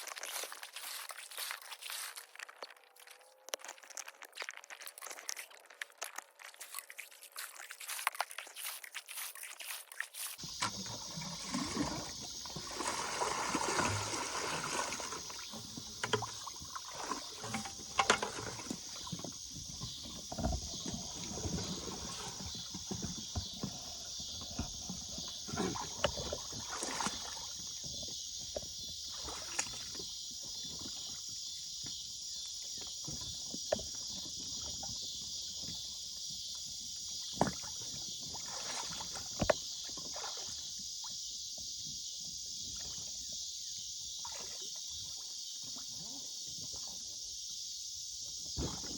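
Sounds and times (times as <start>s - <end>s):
water splashing around kayak: 0.0s - 48.9s.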